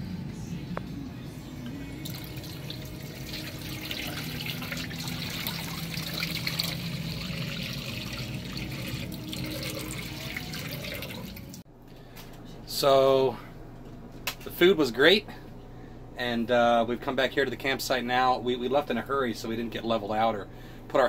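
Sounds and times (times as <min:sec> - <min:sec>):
low steady hum: 0:00.0 - 0:21.0
water running from tap: 0:02.0 - 0:11.6.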